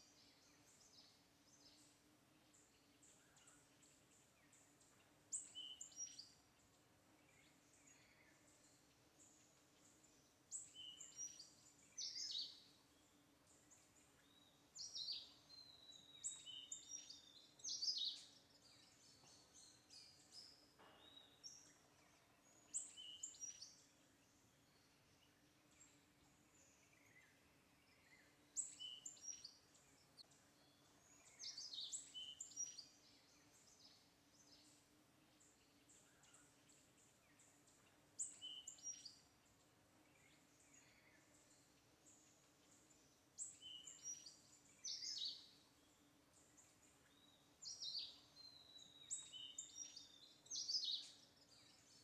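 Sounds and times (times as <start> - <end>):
faint low hum: 0.0 - 52.0
small birds chirping: 0.0 - 52.0.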